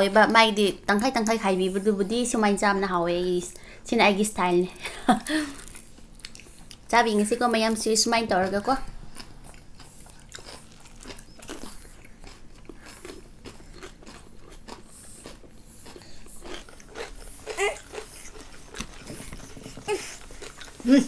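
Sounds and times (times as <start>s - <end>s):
biting and chewing food: 8.4s - 21.0s.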